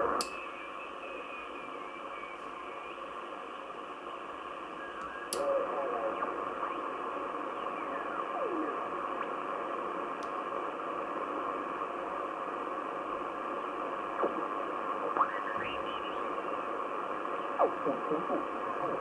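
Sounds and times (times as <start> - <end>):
radio static hiss: 0.0 - 19.0
faint gliding whistles: 0.4 - 3.0, 4.7 - 5.3.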